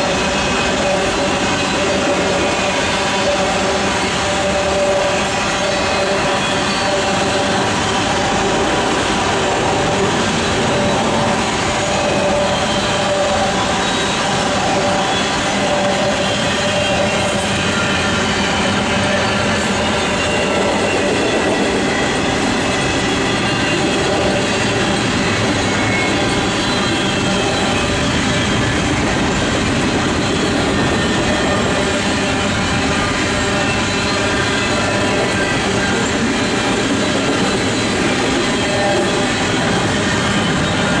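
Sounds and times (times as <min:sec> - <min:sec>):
steel wheels on rail: 0:00.0 - 0:41.0
train cars rattling: 0:00.0 - 0:41.0.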